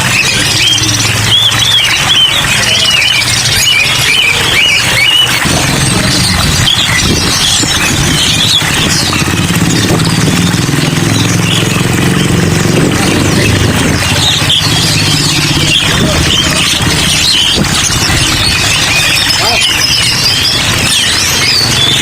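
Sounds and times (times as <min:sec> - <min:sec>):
cage birds chirping: 0:00.0 - 0:22.0
low engine drone: 0:00.0 - 0:22.0.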